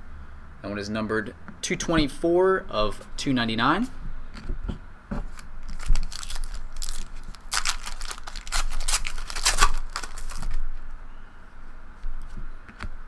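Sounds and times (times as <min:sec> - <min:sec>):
card packaging crinkling: 0:05.3 - 0:10.8.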